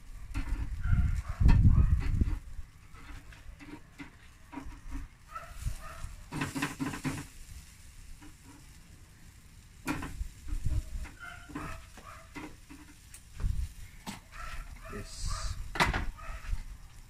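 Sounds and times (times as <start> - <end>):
chicken sizzling: 0.0 - 17.0
utensil scraping cookware: 0.2 - 7.3, 9.8 - 13.1.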